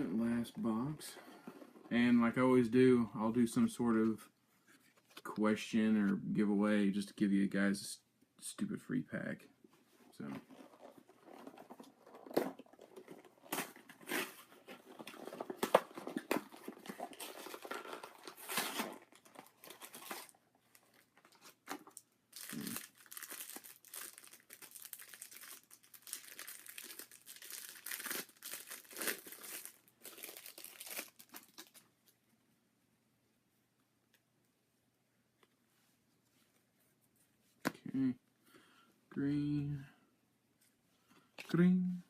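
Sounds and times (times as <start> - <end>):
packaging crinkling and ripping: 10.5 - 31.9.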